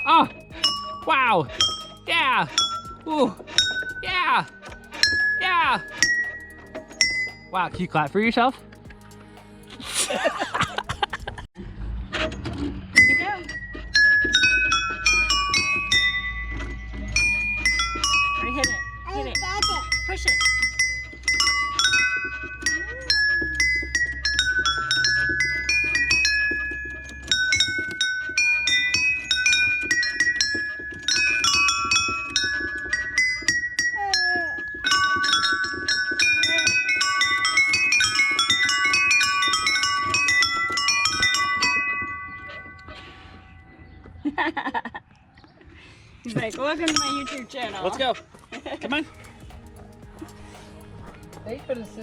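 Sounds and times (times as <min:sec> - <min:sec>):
bell-like chime notes: 0:14.0 - 0:43.8.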